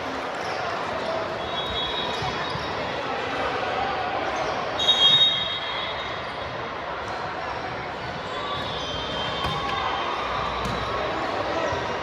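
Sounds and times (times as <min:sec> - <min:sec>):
referee's whistle blast: 0:04.8 - 0:06.1.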